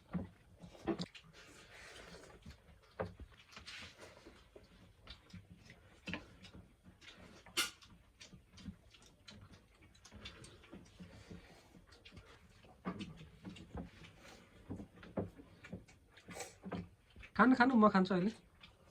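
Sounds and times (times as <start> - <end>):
dishes and utensils clinking: 7.5 - 7.9.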